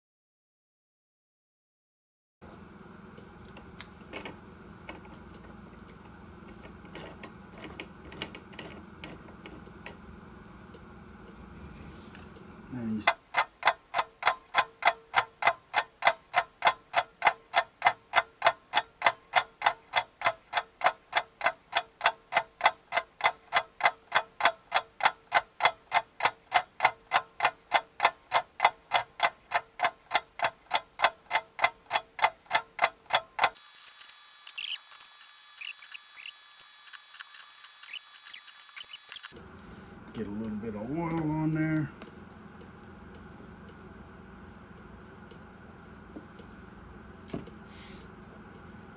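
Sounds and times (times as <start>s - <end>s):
clock-like ticking: 13.0s - 33.6s.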